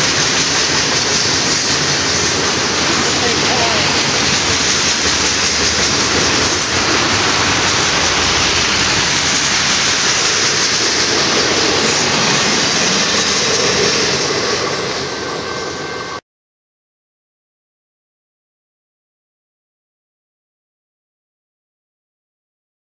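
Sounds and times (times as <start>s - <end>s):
freight train wheels on rail: 0.0s - 16.2s.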